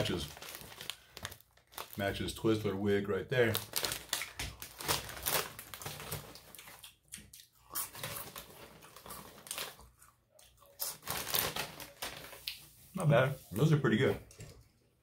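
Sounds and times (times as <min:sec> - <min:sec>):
chewing crunchy cheese puffs: 0:03.6 - 0:12.6.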